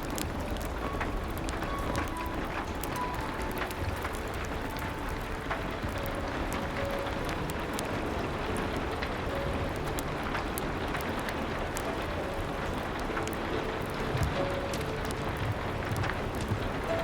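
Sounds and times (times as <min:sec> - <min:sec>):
rain hiss: 0:00.0 - 0:17.0
wood fire crackling: 0:00.0 - 0:17.0.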